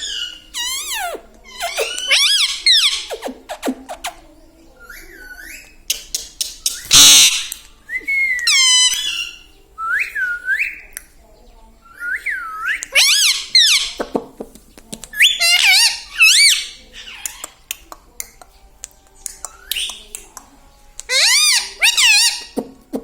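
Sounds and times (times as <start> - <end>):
parrot whistled calls: 0.1 - 3.3.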